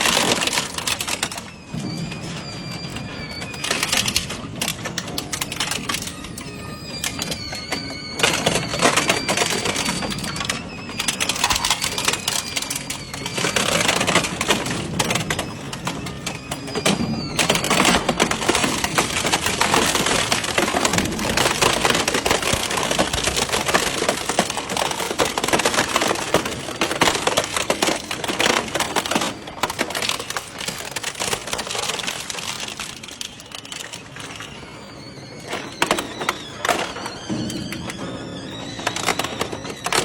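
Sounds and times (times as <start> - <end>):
shredder crunching scrap metal: 2.7 - 34.5.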